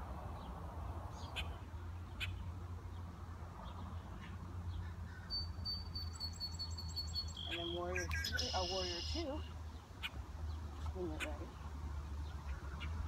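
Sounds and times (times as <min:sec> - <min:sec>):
bird chirps: 0:04.2 - 0:10.2
pulsing bird trill: 0:05.3 - 0:09.4.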